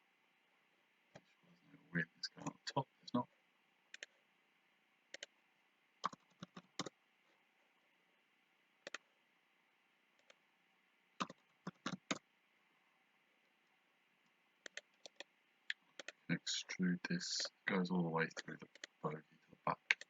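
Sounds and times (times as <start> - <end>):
faint steady hiss: 0.0 - 20.0
computer mouse clicking: 3.9 - 4.1, 5.1 - 5.3, 8.8 - 9.0, 10.2 - 10.4, 14.6 - 16.2, 18.6 - 19.0.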